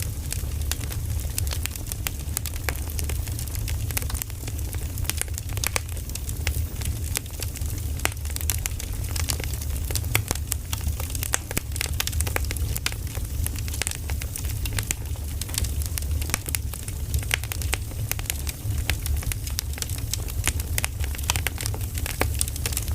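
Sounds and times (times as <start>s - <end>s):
low fire rumble: 0.0s - 22.9s
wood fire crackling and popping: 0.0s - 22.9s.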